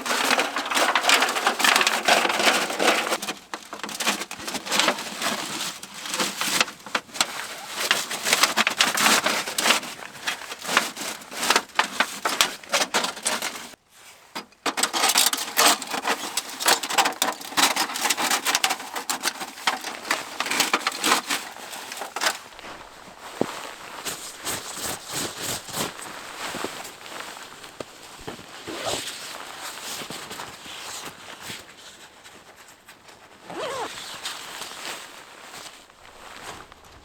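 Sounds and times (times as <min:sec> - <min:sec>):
wood crackling and snapping: 0:00.0 - 0:13.8, 0:14.6 - 0:26.6.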